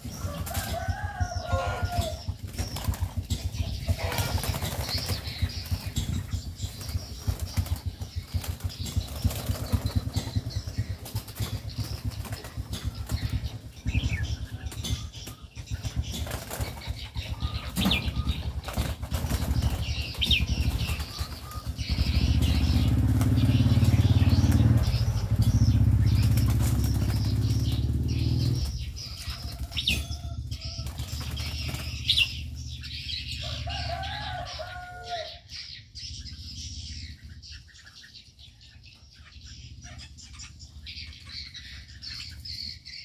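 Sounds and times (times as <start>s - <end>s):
birds flapping wings: 0.0s - 30.0s, 30.7s - 32.6s.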